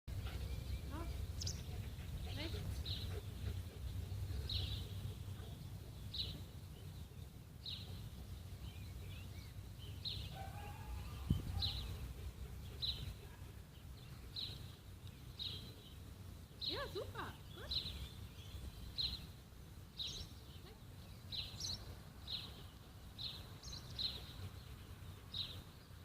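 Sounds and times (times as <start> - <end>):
bird twittering song: 0.1 - 26.0
wind on microphone: 11.1 - 12.1.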